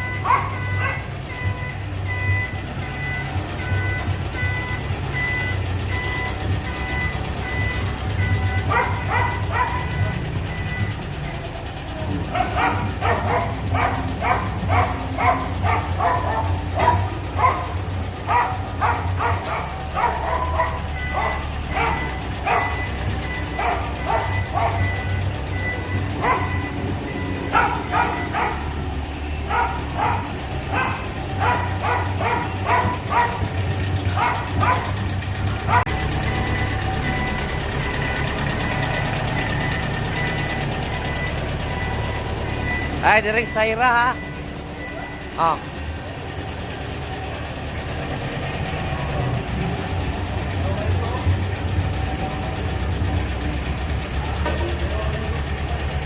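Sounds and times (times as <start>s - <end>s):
low engine hum: 0.0s - 56.0s
dog barking: 0.2s - 1.1s, 8.6s - 10.3s, 12.1s - 25.1s, 26.2s - 36.0s.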